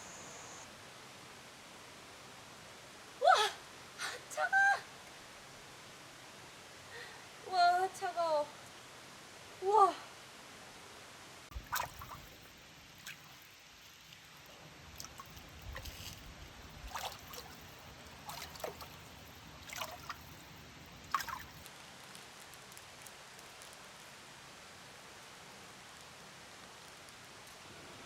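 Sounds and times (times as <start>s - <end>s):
water splashing in stream: 11.5s - 21.7s.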